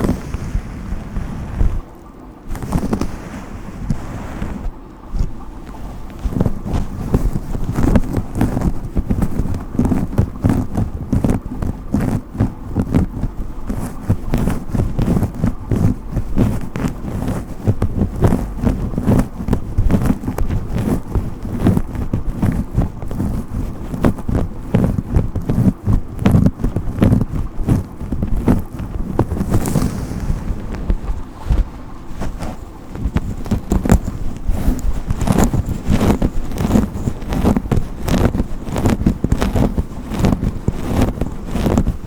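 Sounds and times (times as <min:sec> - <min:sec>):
brush strokes scratching: 0:00.0 - 0:01.9, 0:02.5 - 0:42.0
low rumbling knocks: 0:28.9 - 0:35.6.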